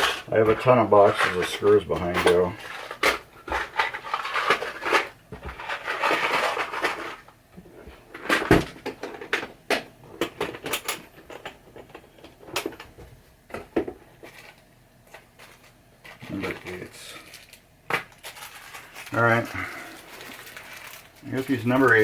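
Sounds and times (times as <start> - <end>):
screws rattling in boxes: 0.0 - 7.3, 15.4 - 22.0.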